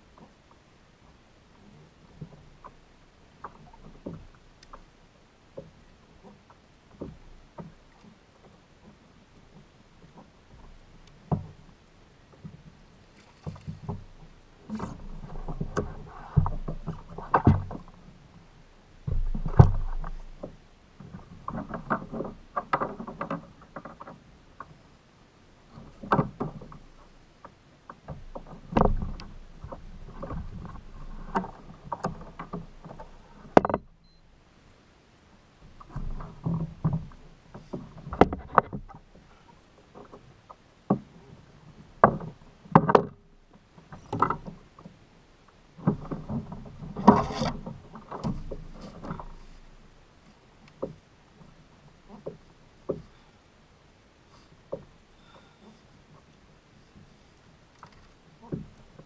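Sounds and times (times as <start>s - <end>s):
knocks against kayak hull: 14.8s - 17.9s, 38.0s - 38.9s.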